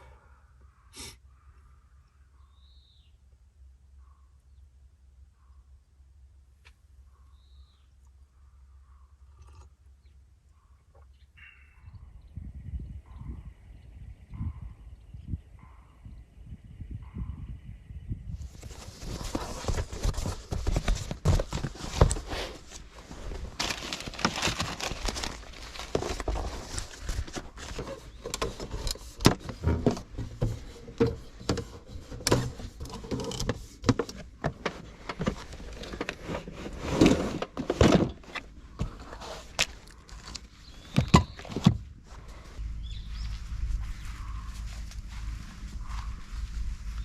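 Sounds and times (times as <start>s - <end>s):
objects being handled: 18.5s - 42.6s
low rumble: 41.8s - 47.0s.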